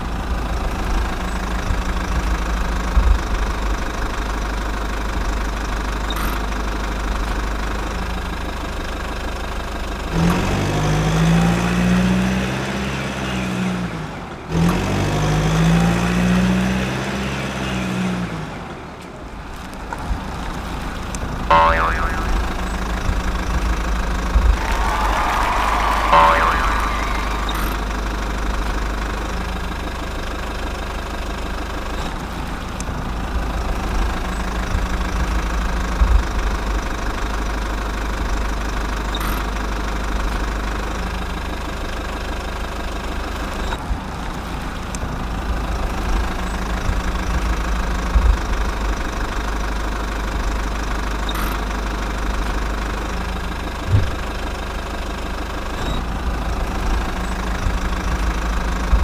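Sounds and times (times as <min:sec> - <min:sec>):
small engine idling: 0:00.0 - 0:11.9, 0:26.0 - 0:59.0.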